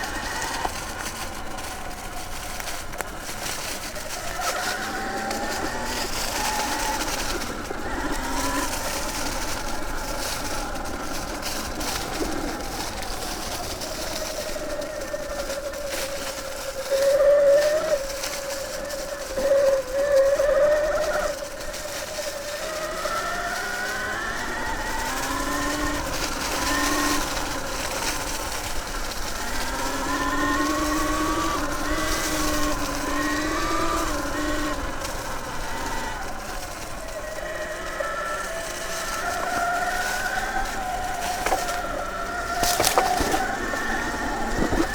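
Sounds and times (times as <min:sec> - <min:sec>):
electric motorcycle motor whining: 0:00.0 - 0:44.9.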